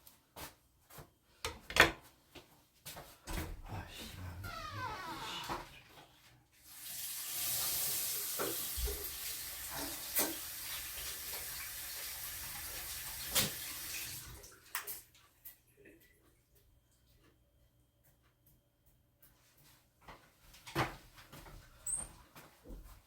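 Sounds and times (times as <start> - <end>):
water running from a tap: 6.6 - 15.3.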